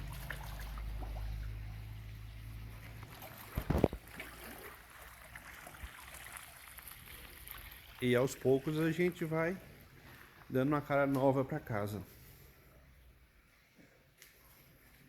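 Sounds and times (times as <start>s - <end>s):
filter pump humming: 0.0s - 10.5s
water trickling: 0.0s - 11.0s.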